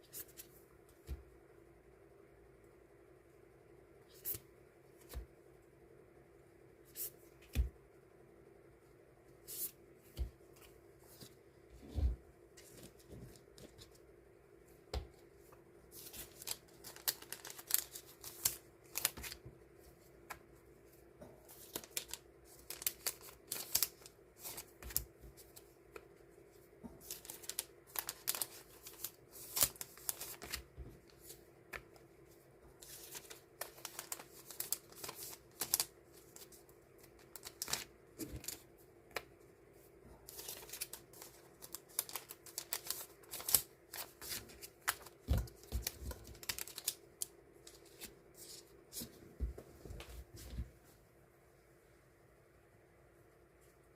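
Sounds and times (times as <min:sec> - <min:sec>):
low room hum: 0:00.0 - 0:53.9
paper stickers rustling and tapping: 0:16.0 - 0:19.6, 0:26.9 - 0:32.0, 0:32.8 - 0:39.3, 0:40.3 - 0:50.1.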